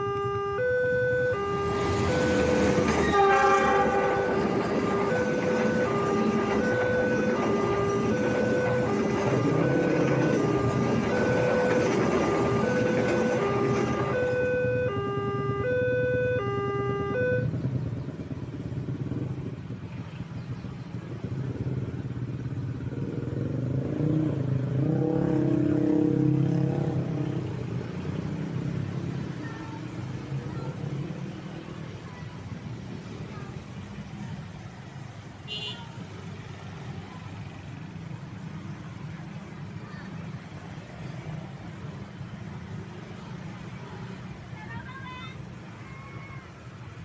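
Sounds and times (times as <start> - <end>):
motorcycle and car engines: 0.0 - 47.0
train rumbling: 1.5 - 15.6
level crossing alarm two-note tone: 14.1 - 17.5.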